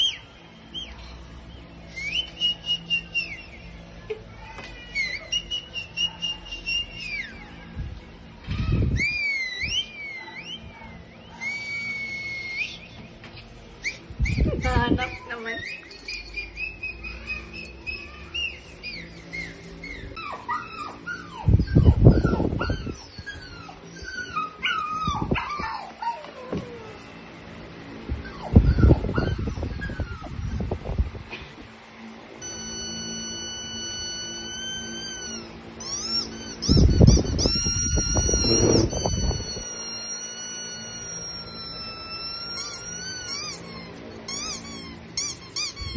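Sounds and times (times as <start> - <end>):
dog whimpering and yipping: 8.9 - 12.9, 13.8 - 27.0, 28.2 - 30.8, 32.4 - 45.9
warbling whistle: 8.9 - 13.0, 32.4 - 45.9.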